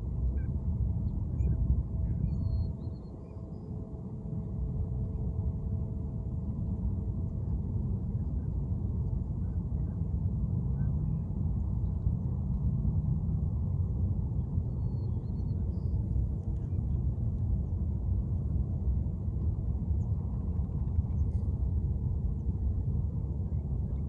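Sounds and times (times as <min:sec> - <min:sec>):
low outdoor rumble: 0:00.0 - 0:24.0
faint bird chirps: 0:01.3 - 0:03.7.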